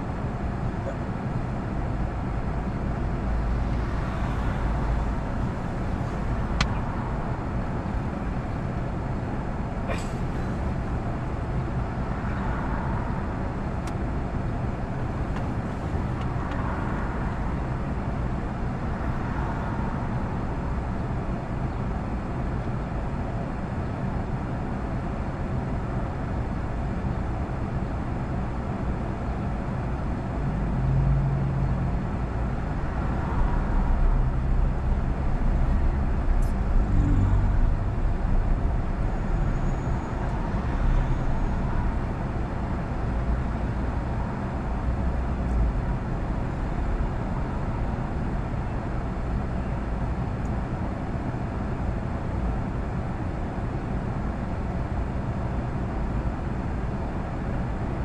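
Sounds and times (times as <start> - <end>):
car engine idling: 0.0 - 12.4
road traffic noise: 0.0 - 58.0.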